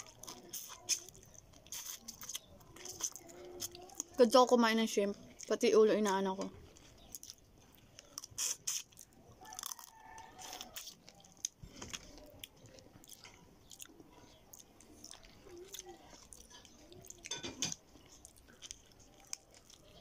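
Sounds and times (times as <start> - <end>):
wet chewing with crunches: 0.0 - 4.4, 5.0 - 20.0.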